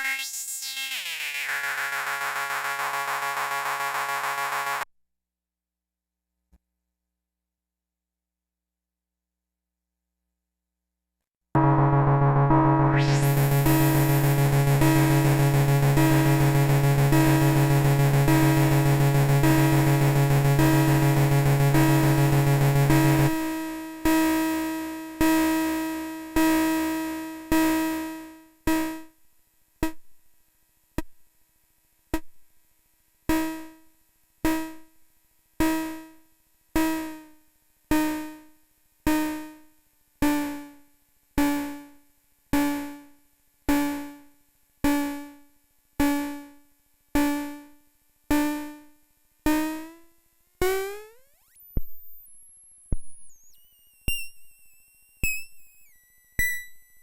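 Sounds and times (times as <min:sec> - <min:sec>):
high whistling synth sweep: 0:00.0 - 0:02.6, 0:51.1 - 0:56.7
synthesizer pinging tone: 0:00.0 - 0:04.8, 0:11.6 - 0:23.3, 0:50.6 - 0:57.0.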